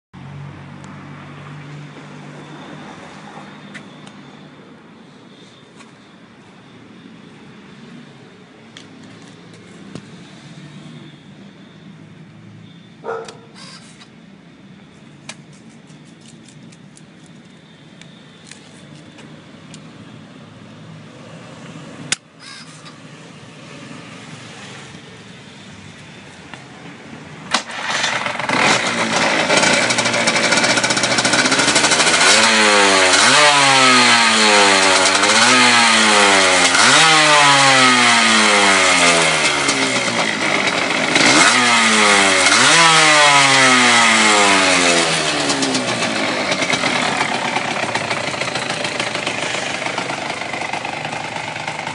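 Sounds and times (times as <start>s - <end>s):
two-stroke motorcycle engine revving: 27.5s - 51.9s.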